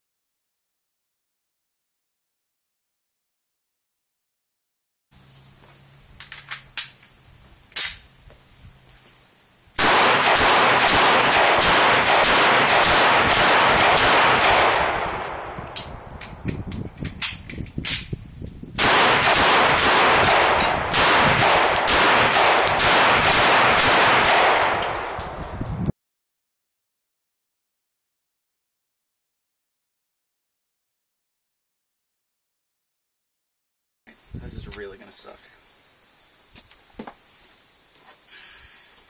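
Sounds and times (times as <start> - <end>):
gunshots: 9.8 - 16.0, 18.8 - 25.2.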